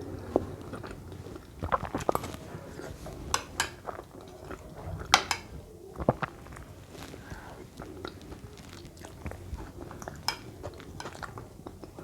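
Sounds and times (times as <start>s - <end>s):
cutlery clinking against a dish: 3.2s - 5.6s, 9.8s - 12.0s.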